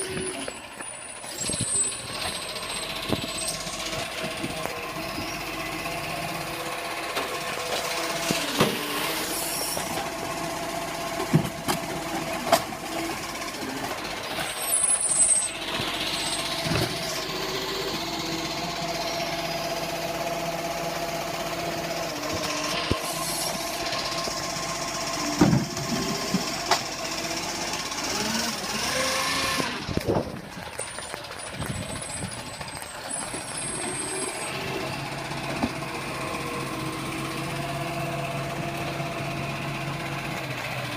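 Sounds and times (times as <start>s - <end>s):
truck engine running: 0.0s - 40.9s
sharp knocks and clanks: 11.2s - 12.7s.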